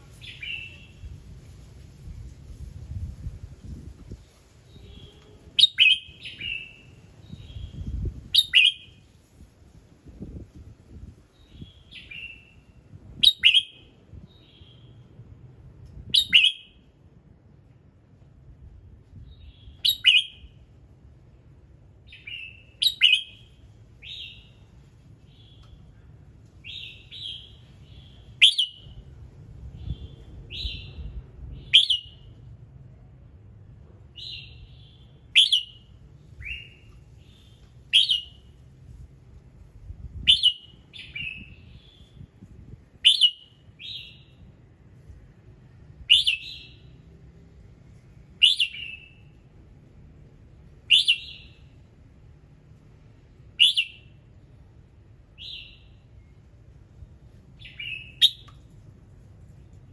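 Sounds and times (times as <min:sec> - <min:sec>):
bird singing whistled phrases: 0:00.2 - 0:01.0, 0:04.7 - 0:09.0, 0:11.4 - 0:12.6, 0:13.2 - 0:15.0, 0:16.1 - 0:16.8, 0:19.3 - 0:20.5, 0:22.1 - 0:24.5, 0:26.6 - 0:29.0, 0:29.8 - 0:32.3, 0:34.2 - 0:38.5, 0:40.2 - 0:42.2, 0:43.0 - 0:44.4, 0:46.1 - 0:46.8, 0:48.4 - 0:49.3, 0:50.9 - 0:51.6, 0:53.5 - 0:54.2, 0:55.4 - 0:56.3, 0:57.6 - 0:58.6.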